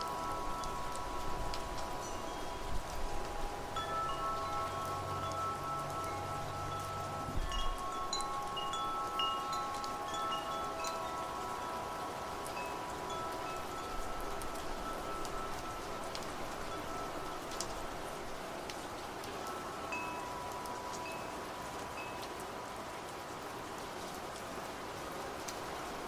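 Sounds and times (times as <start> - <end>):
low wind rumble: 0.0 - 20.6
wind chimes ringing: 0.0 - 22.7
rain hiss: 0.0 - 26.0.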